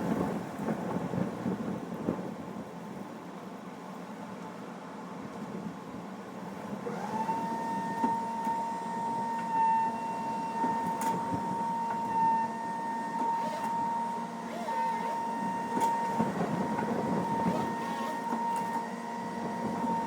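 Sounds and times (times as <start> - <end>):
motor whining: 6.8 - 16.2, 17.2 - 18.9.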